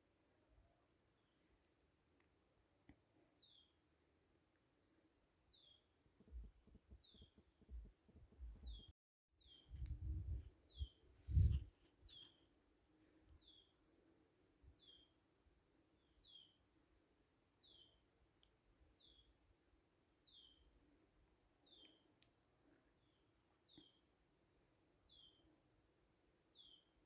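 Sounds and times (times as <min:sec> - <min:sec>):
low thuds: 0:09.7 - 0:10.5.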